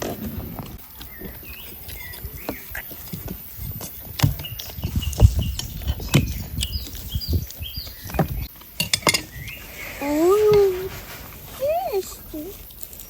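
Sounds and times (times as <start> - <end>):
cutlery and dishes clinking: 8.8 - 9.4.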